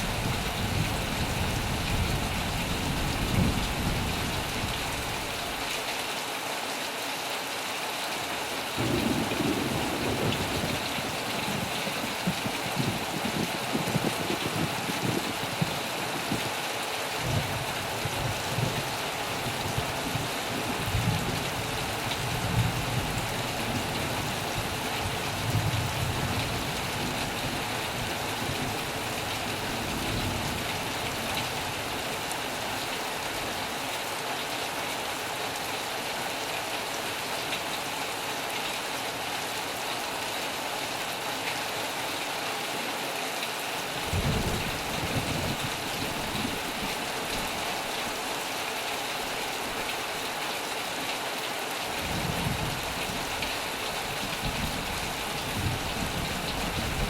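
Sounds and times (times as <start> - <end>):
heavy rain on metal roof: 0.0 - 57.0.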